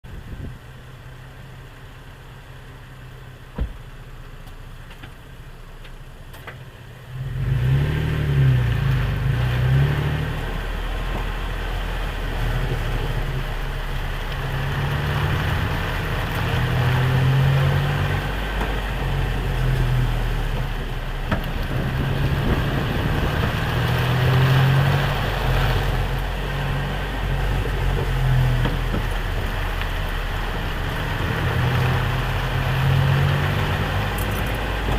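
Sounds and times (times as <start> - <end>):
vehicle engine hum: 0.0 - 34.9.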